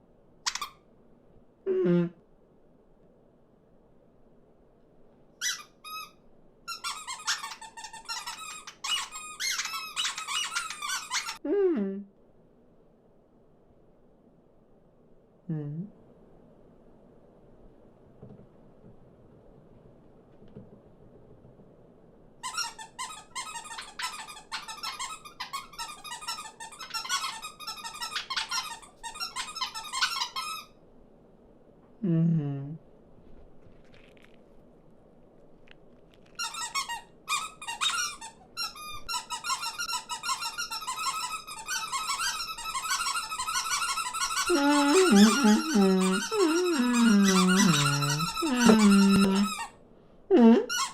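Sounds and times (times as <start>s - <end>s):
cartoon birds chirping: 44.5s - 49.5s.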